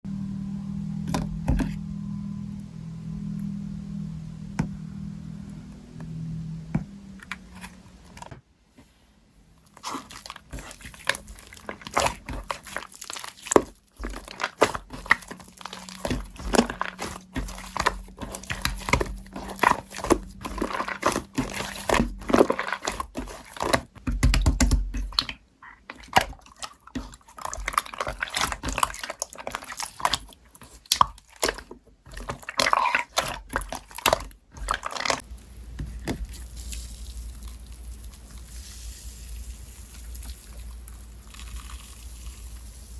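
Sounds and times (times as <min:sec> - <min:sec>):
slime squished by hand: 0:09.7 - 0:35.2.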